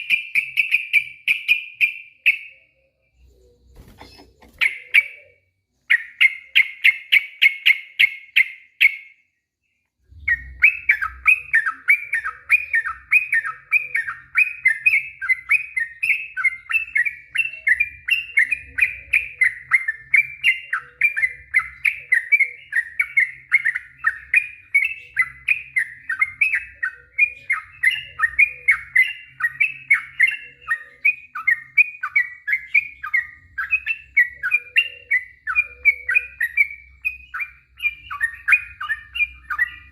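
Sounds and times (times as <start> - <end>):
bulbul singing quick repeated notes: 3.8 - 5.3.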